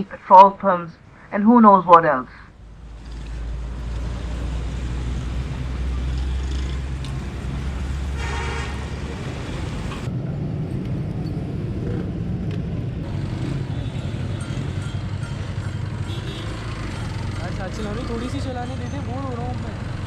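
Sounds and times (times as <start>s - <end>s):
horn honking: 7.8s - 10.1s, 13.1s - 19.0s
motorcycle engine running: 13.0s - 20.0s.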